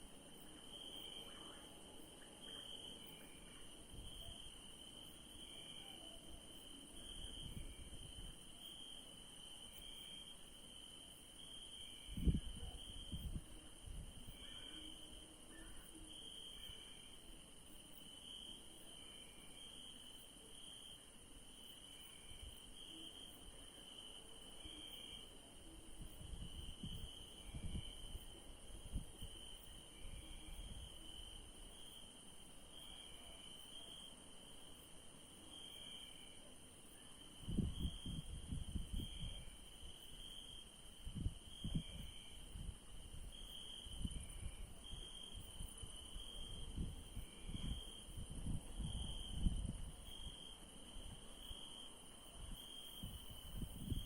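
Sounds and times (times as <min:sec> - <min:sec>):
crickets chirping: 0:00.0 - 0:54.0
high insect trill: 0:00.1 - 0:54.0
short repeating insect call: 0:21.6 - 0:54.0.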